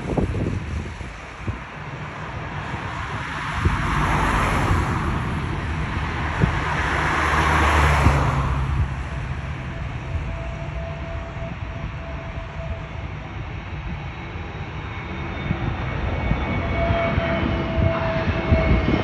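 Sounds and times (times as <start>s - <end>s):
jet airliner roar: 0.0s - 19.0s
low hum: 2.2s - 14.6s.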